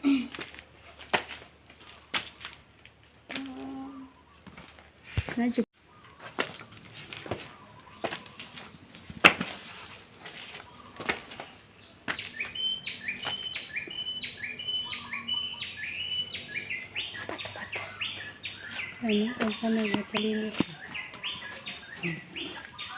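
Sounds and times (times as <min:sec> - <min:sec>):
bird rapid falling chirps: 0:05.8 - 0:22.9.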